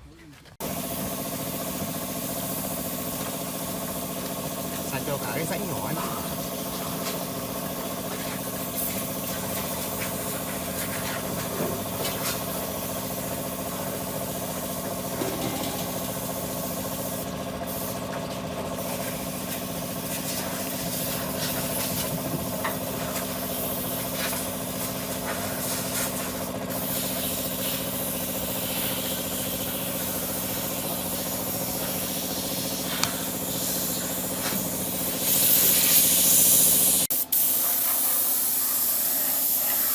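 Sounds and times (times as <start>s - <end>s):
loud spray hiss: 23.2s - 39.9s.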